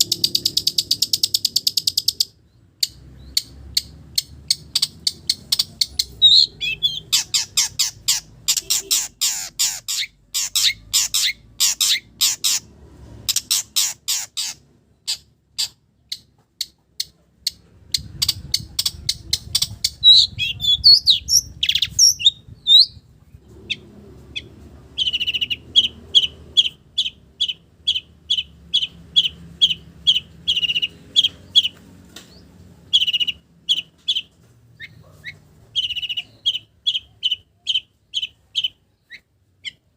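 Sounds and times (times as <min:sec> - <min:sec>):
shrike singing mimicked calls: 0:03.2 - 0:12.6, 0:18.3 - 0:23.0, 0:24.4 - 0:31.8.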